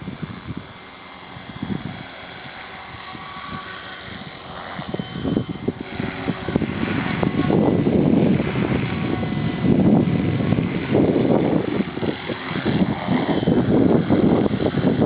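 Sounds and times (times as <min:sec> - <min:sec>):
model helicopter motor whine: 0:00.0 - 0:15.0
wind buffeting microphone: 0:00.0 - 0:15.0.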